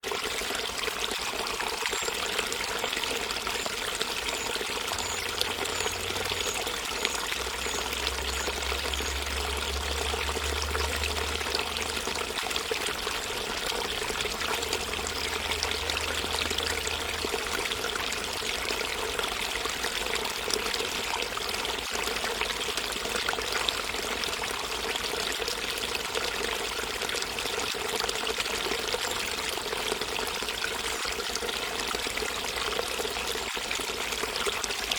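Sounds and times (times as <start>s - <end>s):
water running: 0.2s - 22.0s.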